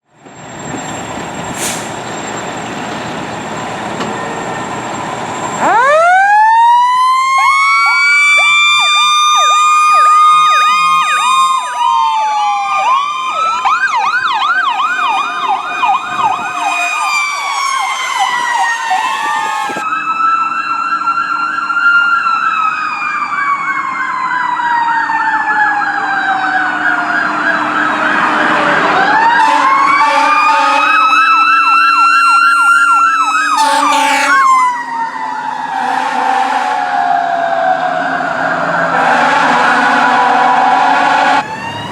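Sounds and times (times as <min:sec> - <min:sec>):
road rumble: 0:00.0 - 0:41.9
siren winding up and down: 0:03.4 - 0:21.2, 0:22.2 - 0:41.9
siren yelping rapidly: 0:05.4 - 0:19.9, 0:28.9 - 0:41.9.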